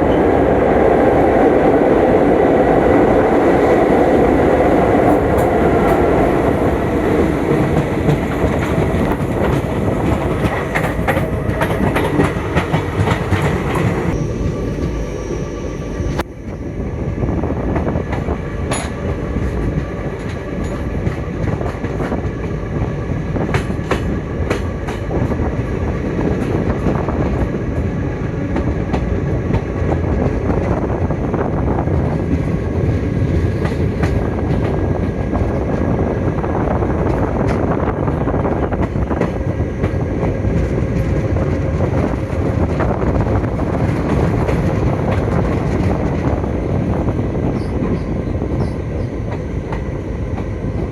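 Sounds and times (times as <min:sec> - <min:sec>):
train rumbling along track: 0:00.0 - 0:50.9
wheels clacking over rail joints: 0:06.9 - 0:14.2.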